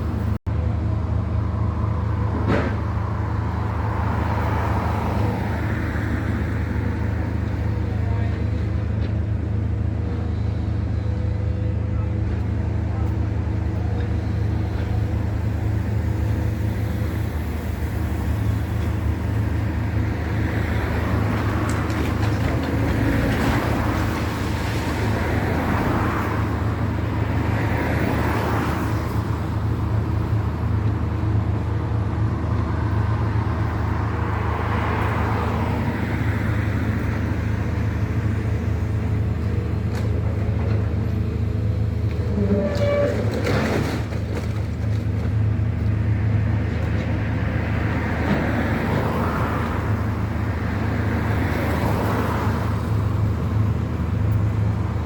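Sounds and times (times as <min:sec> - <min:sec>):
loud engine hum: 0:00.0 - 0:55.0
road vehicles passing: 0:00.0 - 0:55.0
clatter: 0:42.2 - 0:45.3
squeal: 0:42.4 - 0:43.3.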